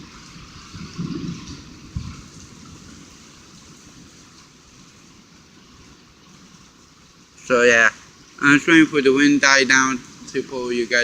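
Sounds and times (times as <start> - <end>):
wind buffeting microphone: 0.0 - 7.2
muffled heavy rain: 0.0 - 11.0.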